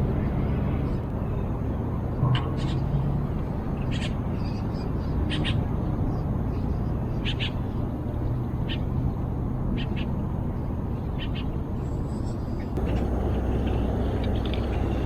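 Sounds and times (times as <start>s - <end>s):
steady low rumble: 12.7s - 15.0s.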